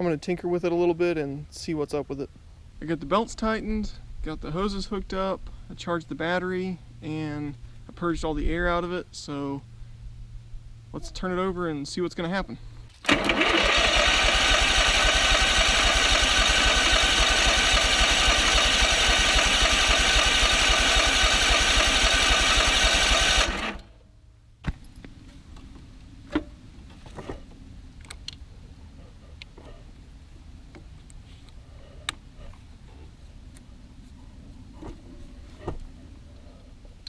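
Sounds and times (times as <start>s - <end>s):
engine starter cranking: 12.9s - 23.9s.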